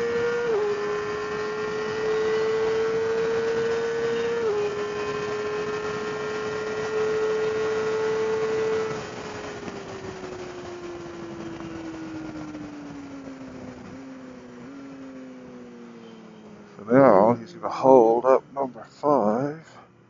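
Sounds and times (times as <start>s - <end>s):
motorcycle engine revving: 0.0s - 19.4s.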